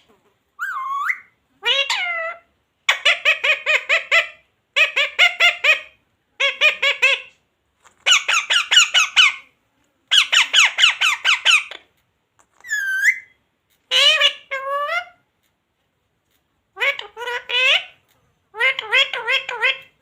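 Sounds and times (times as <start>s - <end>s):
parrot squawking: 0.6s - 7.4s, 8.0s - 9.5s, 10.1s - 11.8s, 12.6s - 15.2s, 16.7s - 20.0s.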